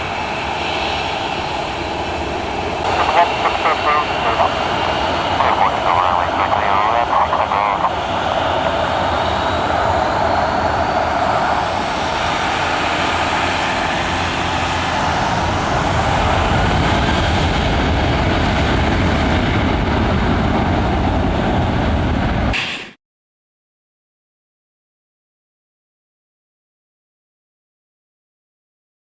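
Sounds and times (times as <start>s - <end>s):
jet engines at high thrust: 0.0s - 23.0s.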